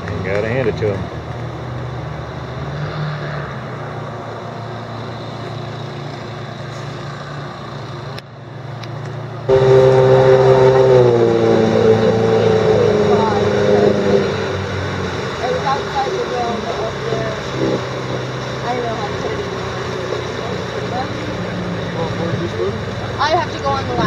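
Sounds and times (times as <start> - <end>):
motorboat engine running: 9.3 - 24.0
louder engine note: 9.5 - 22.8.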